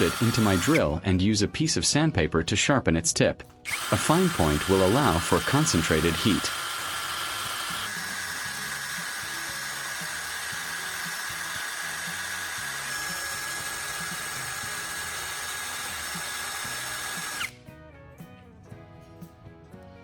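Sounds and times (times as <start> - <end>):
electric drill motor whine: 0.0 - 0.8, 3.7 - 17.6.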